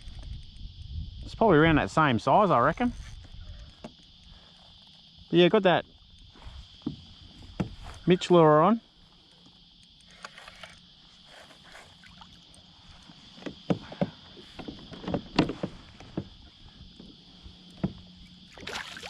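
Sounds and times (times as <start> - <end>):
knocks and taps on kayak: 6.8 - 7.8, 13.3 - 16.4, 17.0 - 18.1.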